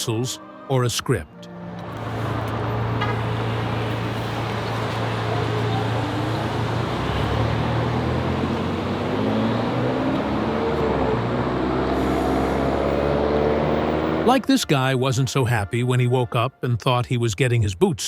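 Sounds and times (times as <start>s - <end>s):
road traffic rumble: 1.7s - 14.6s.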